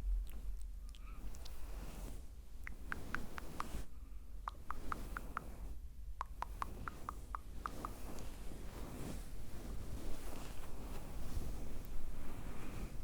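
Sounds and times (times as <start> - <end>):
soft wet mouth clicks: 0.2 - 1.6, 4.4 - 5.5
pop filter rustling: 1.2 - 13.0.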